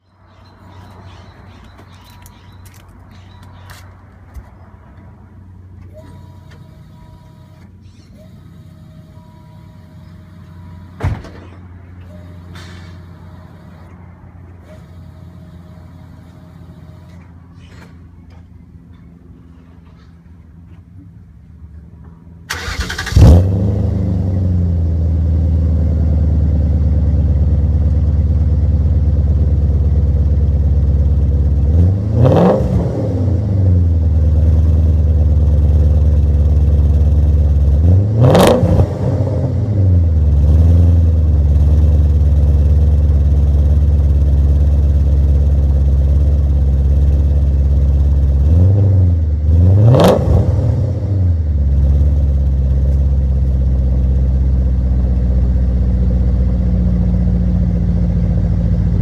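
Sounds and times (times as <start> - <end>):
car engine starting and revving: 22.5 - 59.0.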